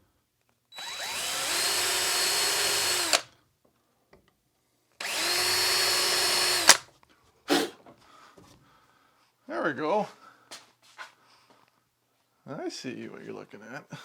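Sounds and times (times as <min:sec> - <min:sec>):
power drill boring into wood: 0:00.8 - 0:03.3, 0:05.0 - 0:06.8.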